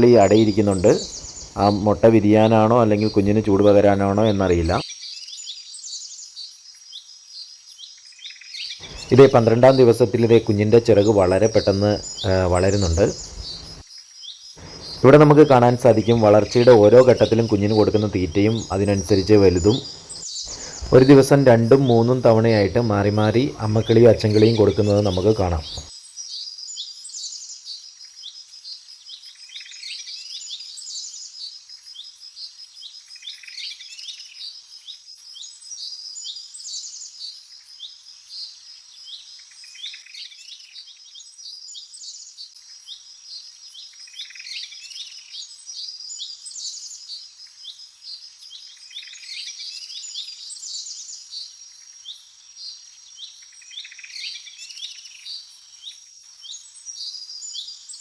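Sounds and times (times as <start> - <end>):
birds chirping and singing: 0.0 - 4.8, 8.8 - 13.8, 14.6 - 25.9.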